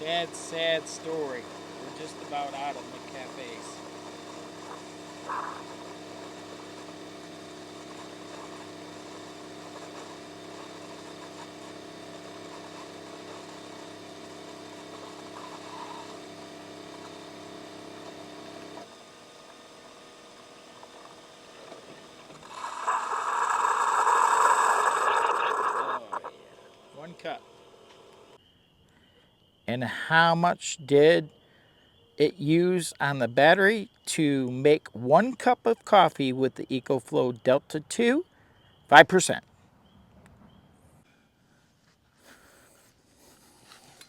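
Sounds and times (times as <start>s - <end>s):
coffee maker hissing sputter: 0.0s - 28.4s
coffee maker humming: 0.0s - 28.4s.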